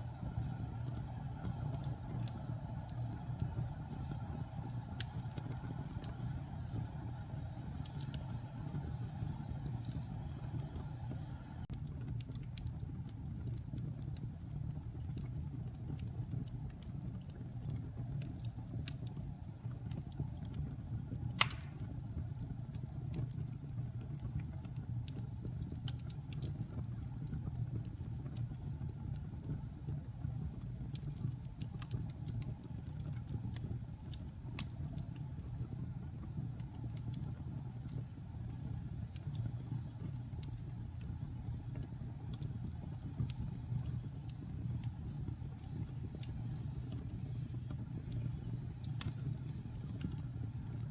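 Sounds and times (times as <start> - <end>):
wood fire crackling: 0.0 - 50.9
loud fire pop: 21.4 - 22.0.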